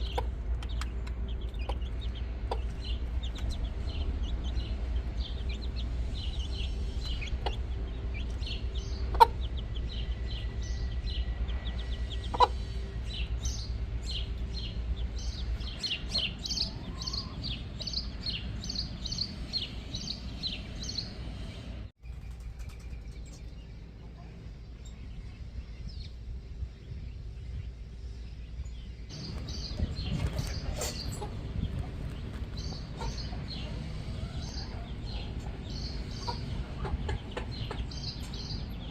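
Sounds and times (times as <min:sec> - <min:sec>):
chickens clucking: 0:00.0 - 0:20.2, 0:29.1 - 0:38.9.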